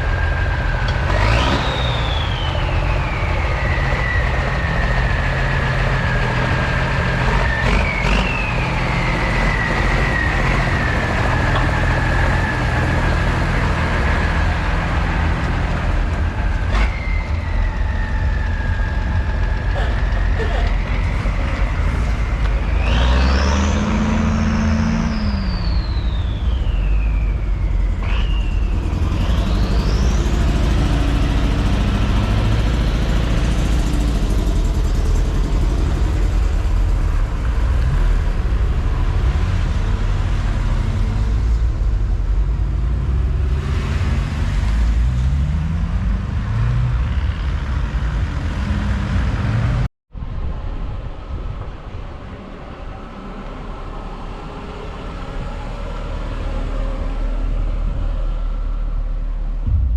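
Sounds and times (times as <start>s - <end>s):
high whistling tone: 0.0s - 13.5s, 16.3s - 19.6s, 20.8s - 31.1s
old vehicle engines rumbling: 0.0s - 59.9s.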